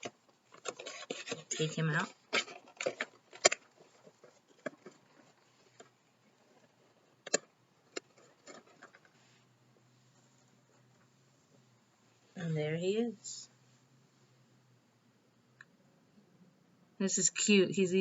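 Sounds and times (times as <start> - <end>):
packaging clicks and rustles: 0.0 - 9.2.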